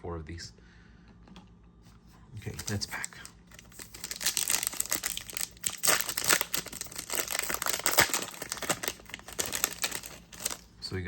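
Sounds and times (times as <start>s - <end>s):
card pack wrapper crinkling and tearing: 2.4s - 10.7s.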